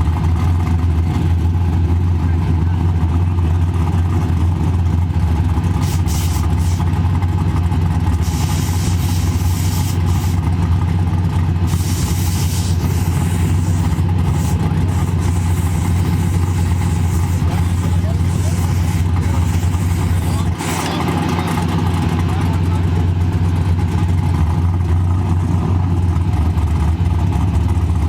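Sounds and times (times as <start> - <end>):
vehicle engine idling: 0.0 - 28.0
hiss: 5.8 - 6.9, 8.2 - 10.4, 11.7 - 20.9.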